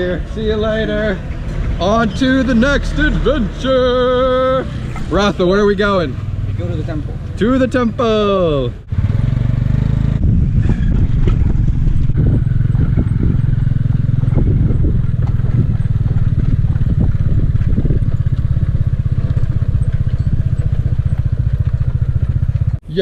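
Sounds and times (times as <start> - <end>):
motorbike engine running: 8.8 - 22.8
knocks and rattles: 10.5 - 22.8.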